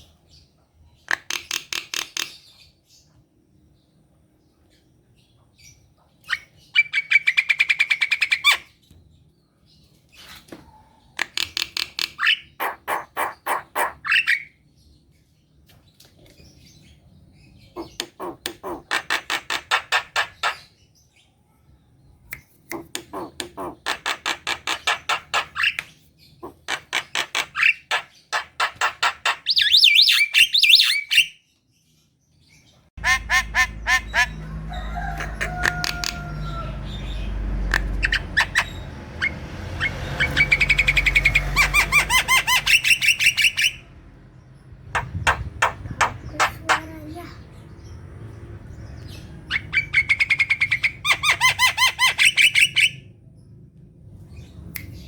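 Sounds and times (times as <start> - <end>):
myna harsh chattering song: 45.0 - 47.4.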